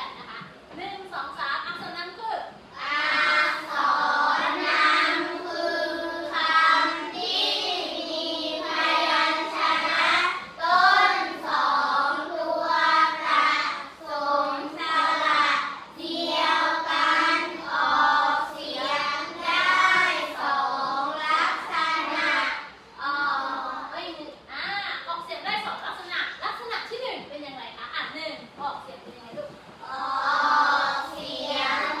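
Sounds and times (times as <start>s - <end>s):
children singing in unison: 2.8s - 23.9s, 29.8s - 32.0s.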